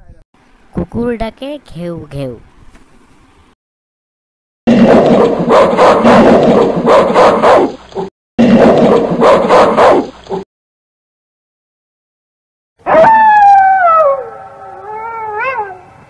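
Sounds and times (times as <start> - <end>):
dog barking: 5.2 - 8.1, 8.9 - 10.4.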